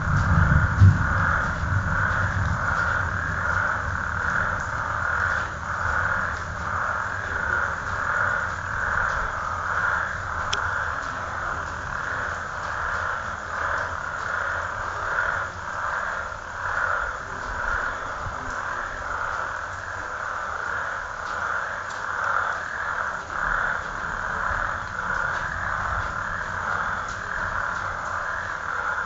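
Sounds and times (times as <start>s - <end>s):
low rumble: 0.0s - 19.3s
chorus of calling frogs: 0.0s - 29.0s.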